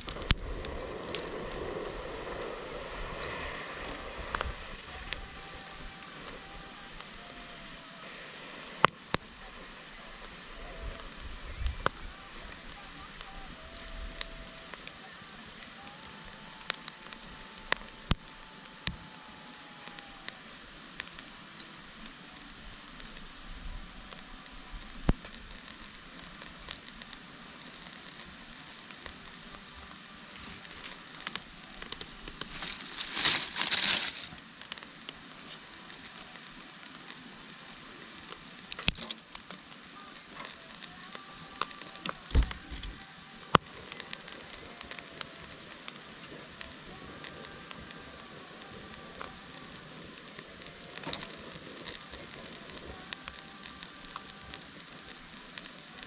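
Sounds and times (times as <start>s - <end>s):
sharp fire pops: 0.0s - 23.4s, 24.0s - 56.0s
campfire crackling and hissing: 0.0s - 56.0s.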